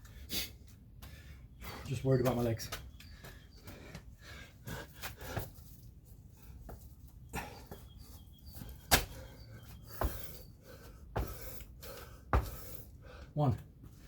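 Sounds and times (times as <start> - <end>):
man panting: 3.2 - 5.6, 7.3 - 13.4.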